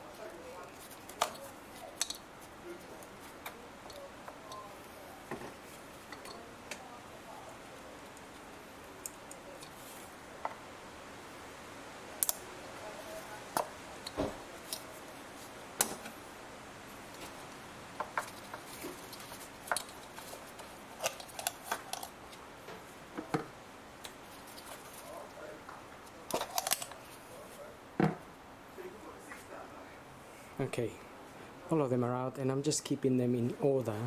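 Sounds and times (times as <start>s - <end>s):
plastic and metal parts clicking: 18.0s - 22.2s, 26.3s - 27.0s.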